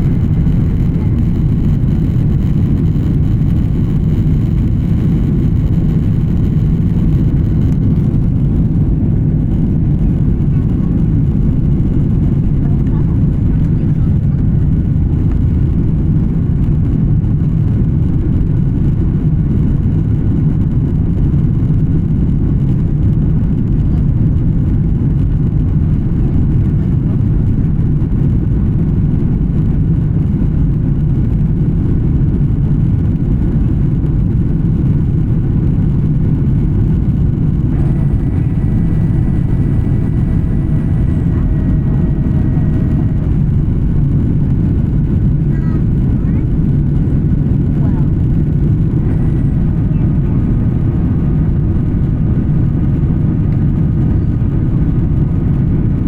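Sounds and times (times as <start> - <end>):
faint multi-tone whine: 0.0 - 56.0
jet engine rumble: 0.0 - 56.0
airflow past fuselage: 35.8 - 52.0.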